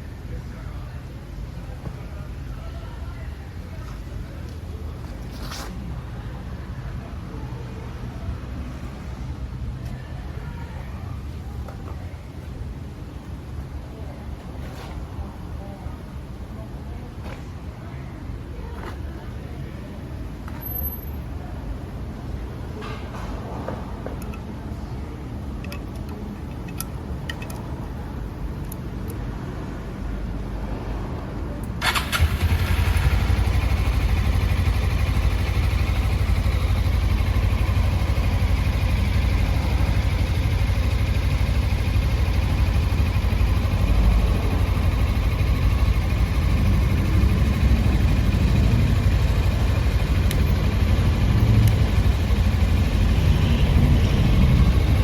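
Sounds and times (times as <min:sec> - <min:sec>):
motorcycle engine starting and idling: 0:31.7 - 0:55.0.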